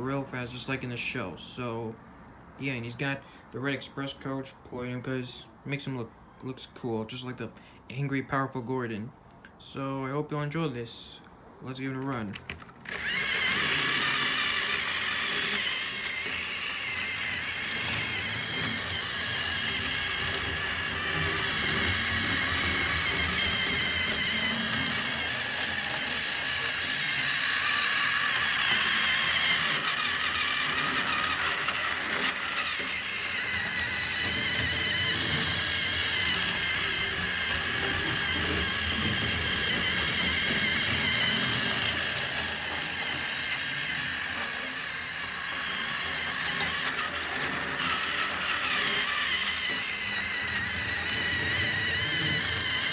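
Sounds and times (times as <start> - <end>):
toy train motor whine: 12.8 - 52.9.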